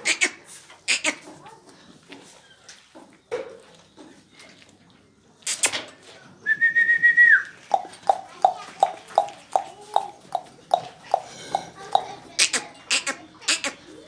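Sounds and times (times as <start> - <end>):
short clicking sounds: 5.5 - 5.8.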